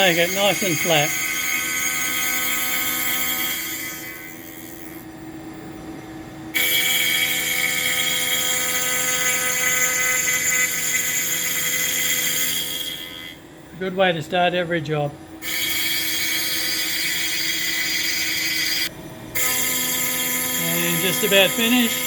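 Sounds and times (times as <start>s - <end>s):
router spindle high whine: 0.0s - 5.9s, 6.5s - 22.0s.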